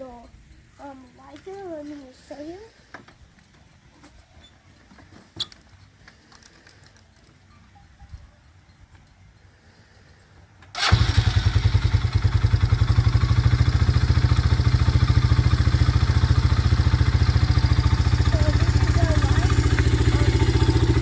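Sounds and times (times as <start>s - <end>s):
atv engine starting and idling: 10.7s - 21.0s.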